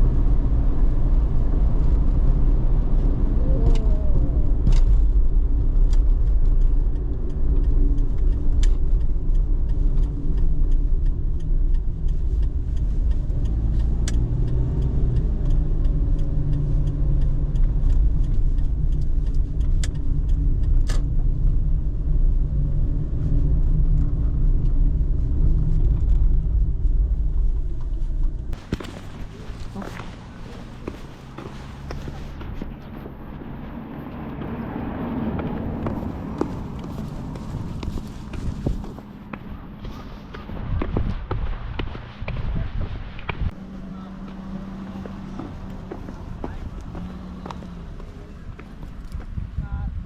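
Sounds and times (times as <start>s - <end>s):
car engine rumble: 0.0s - 50.0s
road noise: 0.0s - 50.0s
faint clicks: 3.5s - 21.3s.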